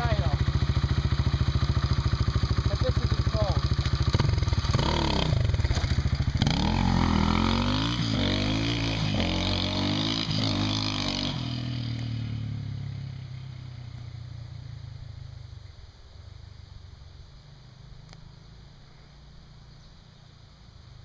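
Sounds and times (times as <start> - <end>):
dirt bike engine revving: 0.0 - 13.2.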